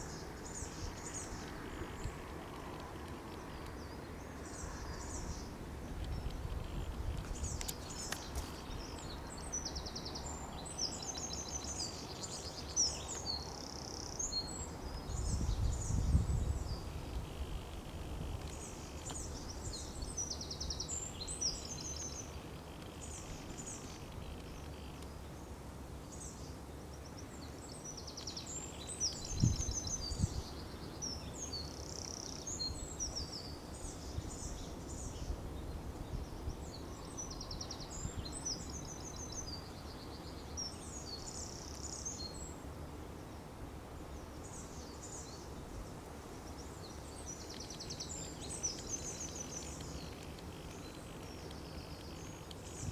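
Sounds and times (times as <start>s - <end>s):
low wind rumble: 0.0s - 11.1s, 14.2s - 24.6s, 28.8s - 31.4s
songbirds chirping and trilling: 0.0s - 52.9s.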